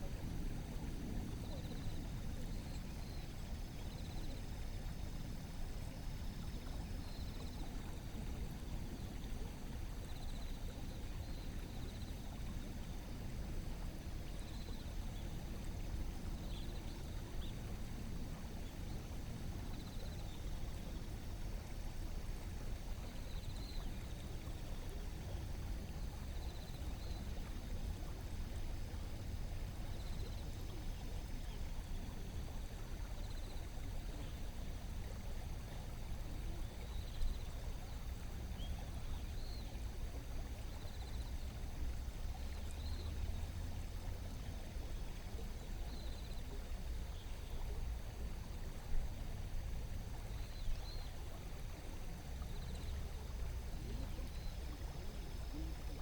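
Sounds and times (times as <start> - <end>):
river water flowing over stones: 12.3 - 56.0.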